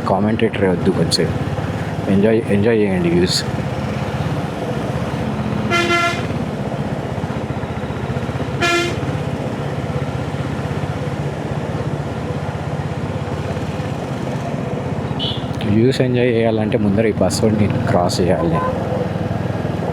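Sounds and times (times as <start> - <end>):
motorcycle engine running: 0.0 - 15.6
horn toot: 5.6 - 6.4, 8.6 - 9.2, 15.2 - 15.5.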